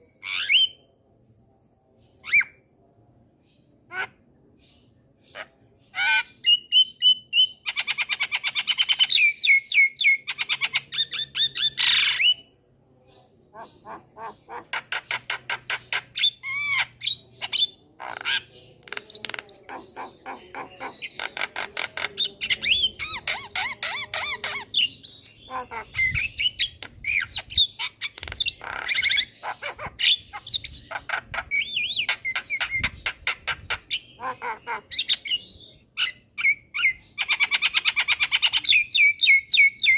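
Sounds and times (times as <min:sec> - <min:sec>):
myna chattering and squawking: 0:13.5 - 0:35.4.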